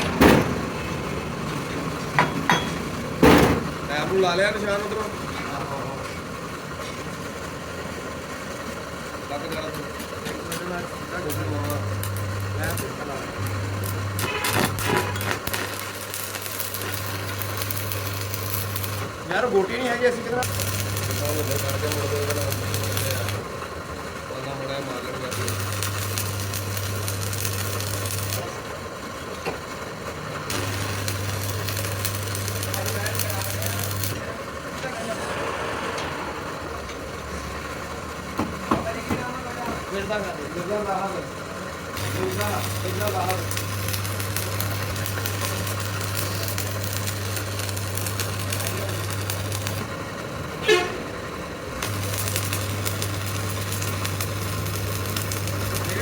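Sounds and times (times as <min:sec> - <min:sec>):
machine hum: 0:00.0 - 0:19.4, 0:20.2 - 0:28.5, 0:29.8 - 0:39.5, 0:41.7 - 0:56.0
lathe turning metal: 0:00.0 - 0:56.0
crackling cutting noise: 0:11.2 - 0:19.1, 0:20.4 - 0:23.5, 0:25.3 - 0:28.5, 0:30.5 - 0:34.3, 0:42.0 - 0:49.9, 0:51.8 - 0:56.0.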